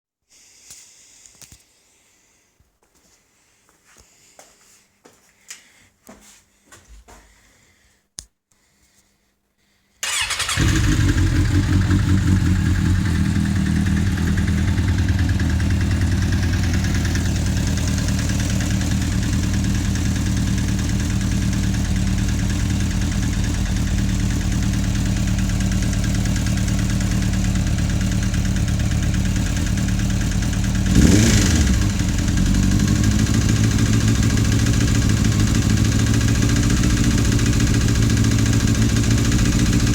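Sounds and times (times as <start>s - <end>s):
engine clicking noise: 10.0s - 39.9s
motorcycle engine idling: 10.0s - 39.9s.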